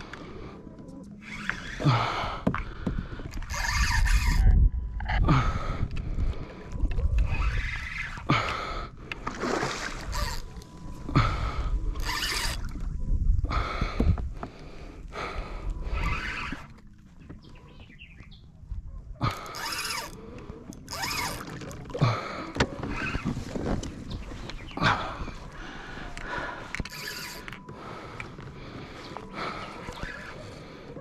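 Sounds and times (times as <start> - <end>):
water splashing against kayak: 9.1 - 11.1, 19.6 - 25.7.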